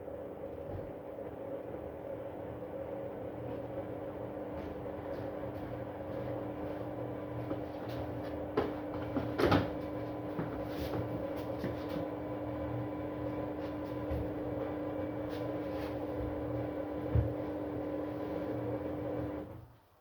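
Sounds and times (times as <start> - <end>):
washing machine humming: 0.0 - 20.0
washing machine clatter: 8.0 - 12.2.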